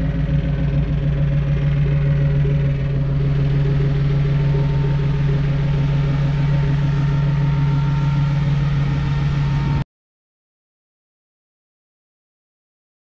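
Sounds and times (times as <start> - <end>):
engine idling: 0.0 - 9.8.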